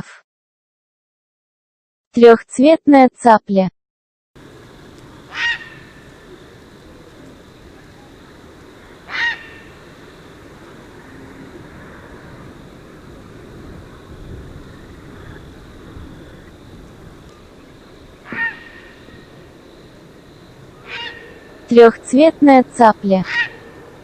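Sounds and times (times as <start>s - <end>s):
heron squawking: 4.4s - 24.0s
steady background hiss: 4.4s - 24.0s.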